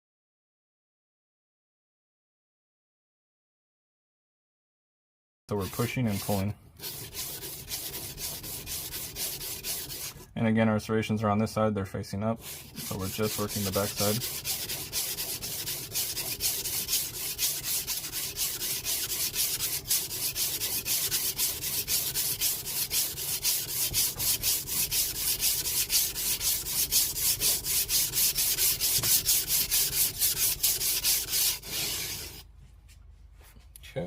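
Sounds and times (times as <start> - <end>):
knife scraping on whetstone: 5.5 - 10.3, 12.4 - 32.4.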